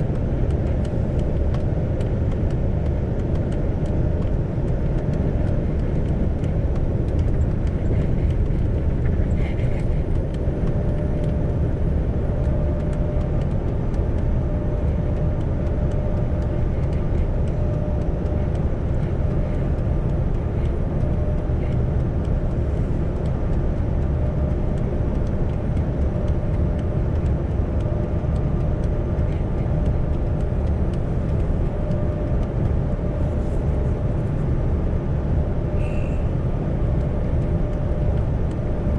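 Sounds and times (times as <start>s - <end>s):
faint steady whine: 0.0s - 38.9s
road rumble: 0.0s - 38.9s
truck engine drone: 0.0s - 38.9s.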